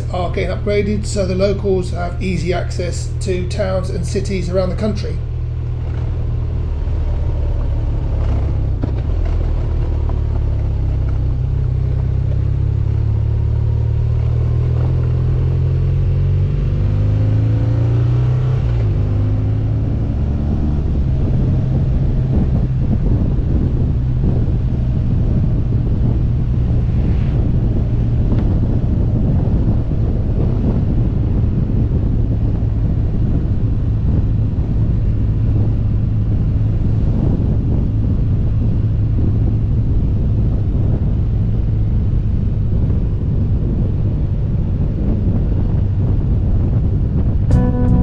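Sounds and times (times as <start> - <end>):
motorcycle engine running: 46.9 - 48.0.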